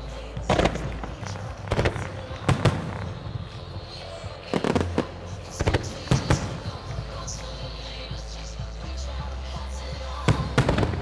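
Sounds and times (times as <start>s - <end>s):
fireworks bursting with sharp booms: 0.0s - 11.0s.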